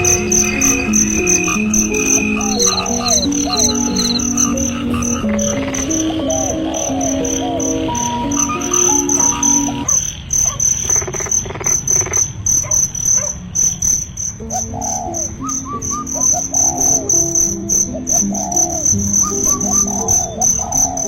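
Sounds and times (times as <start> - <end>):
soft background music: 0.0 - 10.0, 14.4 - 21.0
crickets chirping: 0.0 - 21.0.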